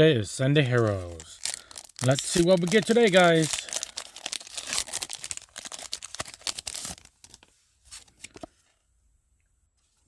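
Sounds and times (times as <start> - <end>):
foil wrapper tearing and crinkling: 1.1 - 8.2.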